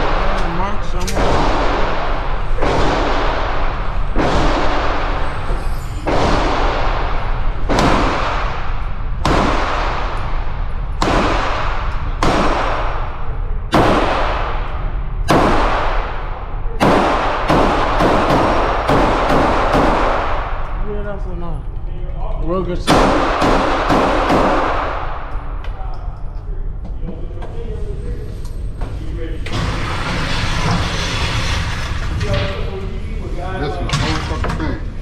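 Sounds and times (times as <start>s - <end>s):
echoing gunshots: 0.0s - 21.0s, 22.8s - 25.6s.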